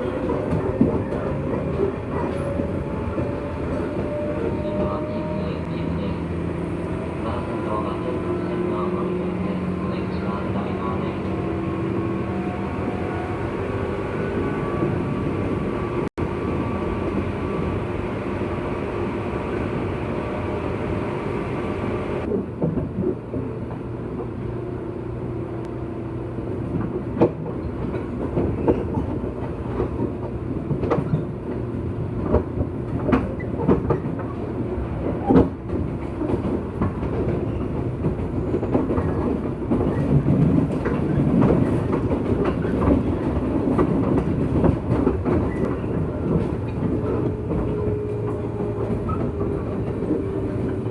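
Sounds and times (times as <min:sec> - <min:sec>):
electric train hum: 0:00.0 - 0:50.9.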